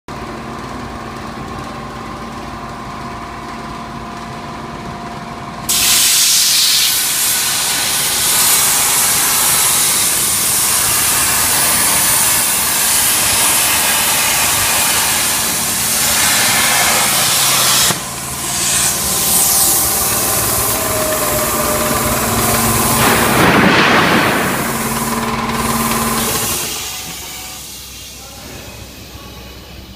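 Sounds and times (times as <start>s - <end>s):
steady machine hum: 0.1s - 29.9s
plasma cutter torch hissing: 5.7s - 29.0s.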